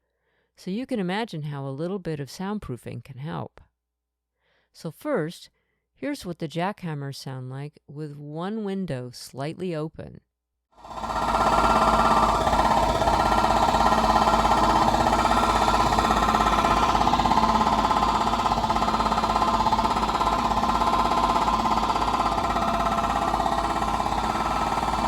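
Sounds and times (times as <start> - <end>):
jackhammers hammering: 10.8 - 25.0.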